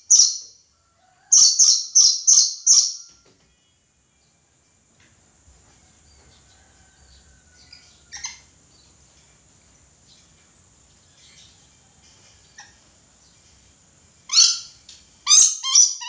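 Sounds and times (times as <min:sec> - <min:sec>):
bird chirps: 0:00.0 - 0:00.5, 0:01.4 - 0:03.2
parrot harsh call: 0:14.3 - 0:16.0.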